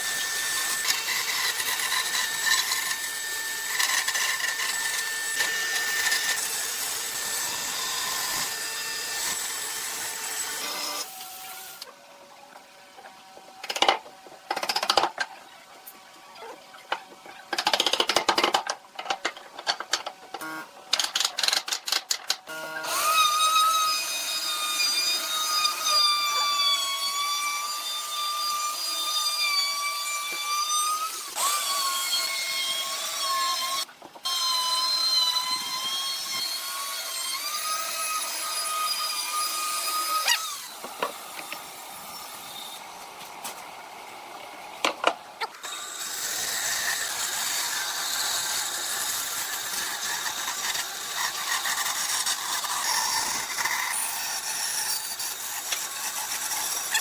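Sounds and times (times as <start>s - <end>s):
tool working wood: 0.0s - 11.9s, 44.8s - 57.0s.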